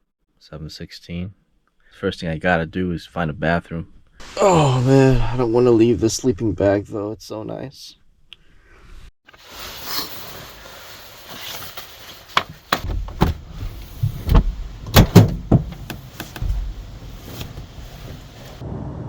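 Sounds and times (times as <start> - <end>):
sharp knocks and clatters: 12.7 - 16.8.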